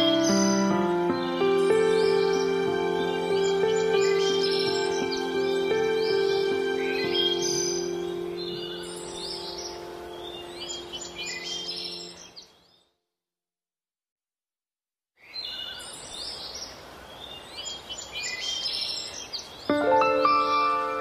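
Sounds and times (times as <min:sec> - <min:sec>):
steady outdoor hiss: 0:00.0 - 0:12.4, 0:15.3 - 0:21.0
birds chirping: 0:00.0 - 0:12.9.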